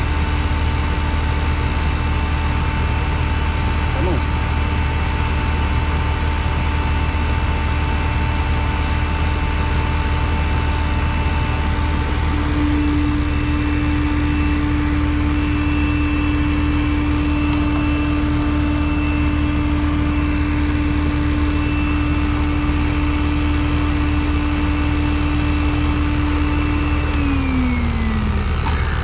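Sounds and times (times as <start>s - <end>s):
electric motor whining: 11.2s - 29.0s.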